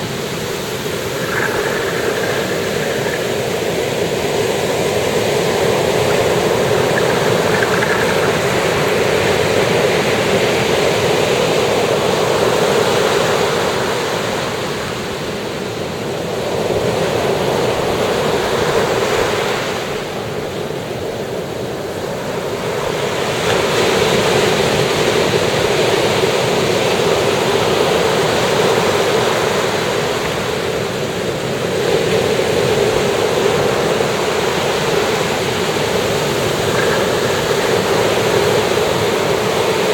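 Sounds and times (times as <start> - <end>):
ocean waves breaking: 0.0 - 11.6.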